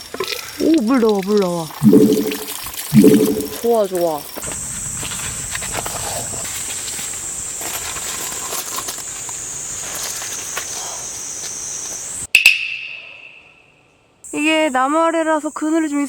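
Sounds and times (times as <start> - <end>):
insects droning: 1.8 - 12.3.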